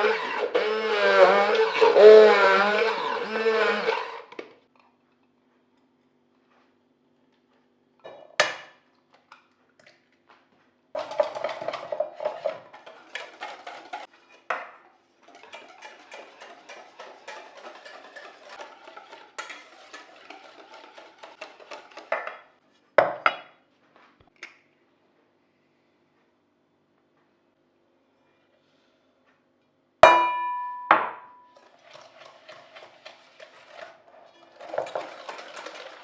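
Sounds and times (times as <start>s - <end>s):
dishes and utensils clattering: 11.0s - 23.2s, 31.5s - 36.0s.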